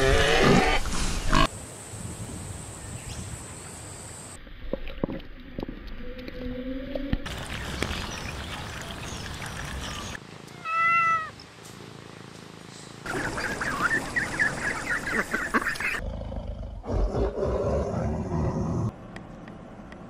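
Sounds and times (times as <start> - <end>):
cat meowing: 10.6 - 11.4.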